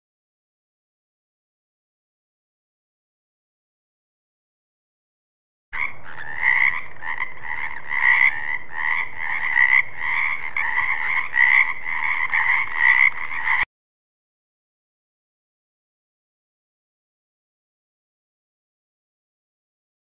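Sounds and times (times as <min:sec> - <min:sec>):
frogs croaking: 0:05.8 - 0:13.7.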